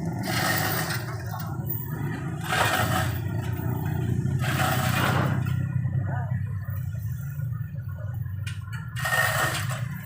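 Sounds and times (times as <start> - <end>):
vehicle engine running: 0.0 - 10.0
faint voices: 5.7 - 9.2.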